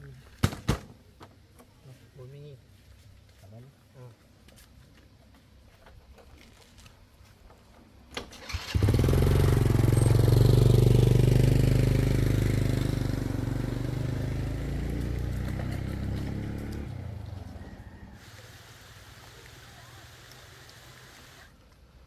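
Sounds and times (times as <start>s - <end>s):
motorcycle engine starting and running: 8.1s - 18.5s.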